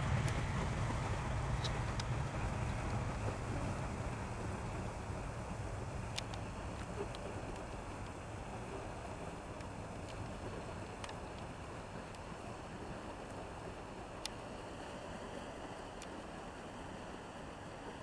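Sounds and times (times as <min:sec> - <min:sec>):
low rumbling noise: 0:00.0 - 0:08.8
faint sharp ticks: 0:01.6 - 0:02.8, 0:06.1 - 0:08.2, 0:09.6 - 0:12.3.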